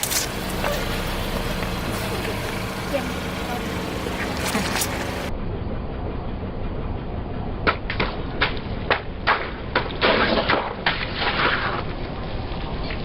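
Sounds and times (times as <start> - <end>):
car engine hum: 0.0 - 10.0.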